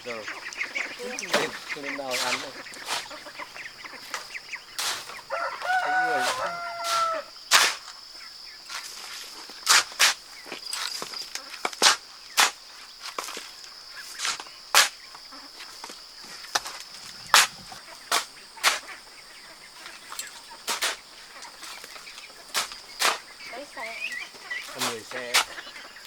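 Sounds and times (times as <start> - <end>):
high-pitched insect drone: 0.0 - 9.5.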